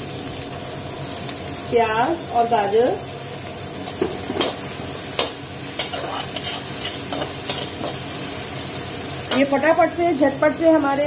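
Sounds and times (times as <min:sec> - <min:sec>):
vegetables sizzling in hot oil: 0:00.0 - 0:11.0
ladle scraping a pan: 0:05.8 - 0:08.0.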